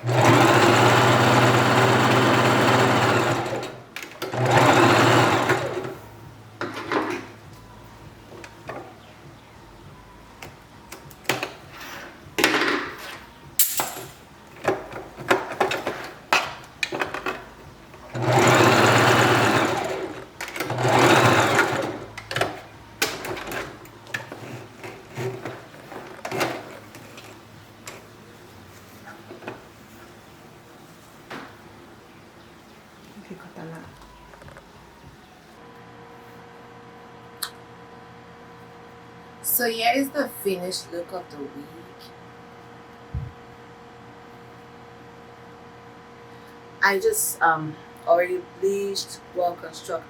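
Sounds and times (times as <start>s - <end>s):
sewing machine stitching: 0.0s - 6.0s, 18.0s - 22.6s.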